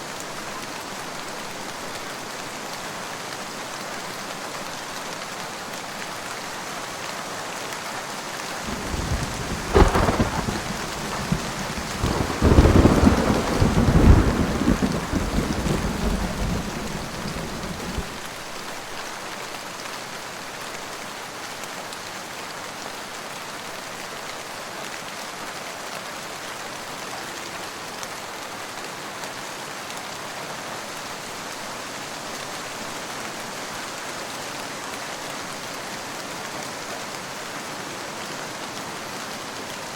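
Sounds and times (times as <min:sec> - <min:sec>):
steady rain: 0:00.0 - 0:39.9
thunder crack and rumble: 0:08.7 - 0:18.3.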